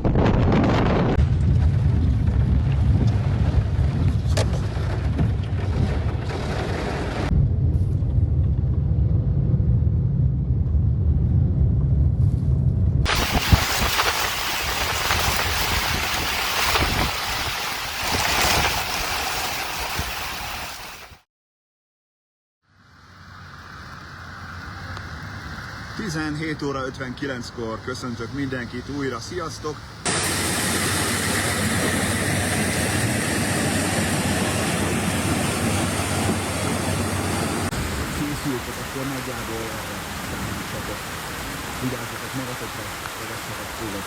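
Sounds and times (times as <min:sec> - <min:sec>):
low hum: 0:00.0 - 0:16.8, 0:30.1 - 0:41.1
gusting wind buffeting microphone: 0:00.0 - 0:20.4, 0:24.6 - 0:44.0
heavy rain pouring: 0:13.1 - 0:21.2, 0:25.3 - 0:44.0.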